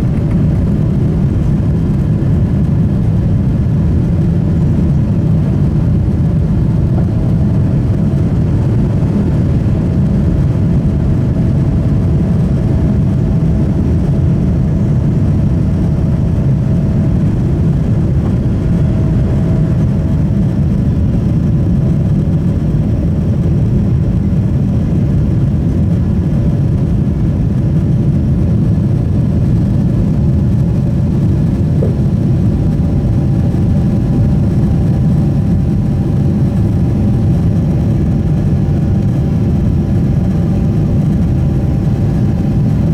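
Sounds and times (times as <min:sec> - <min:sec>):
airplane cabin engine rumble: 0:00.0 - 0:42.9.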